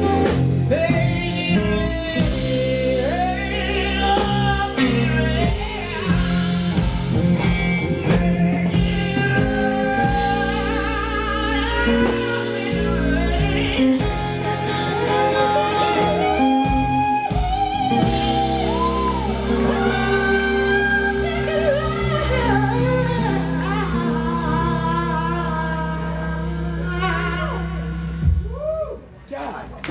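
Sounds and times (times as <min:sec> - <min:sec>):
electric guitar: 0:00.0 - 0:29.0
person singing: 0:00.0 - 0:29.0
bass notes: 0:00.0 - 0:29.3.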